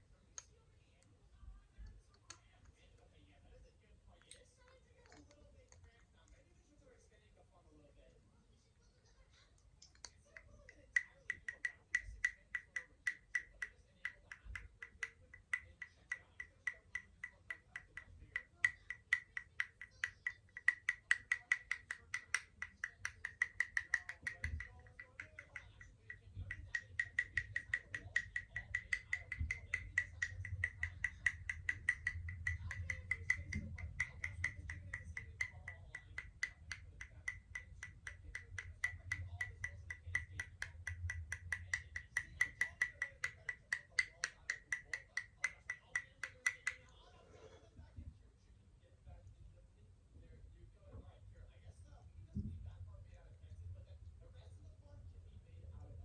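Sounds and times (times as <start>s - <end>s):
tapping on makeup compact: 9.8s - 46.9s.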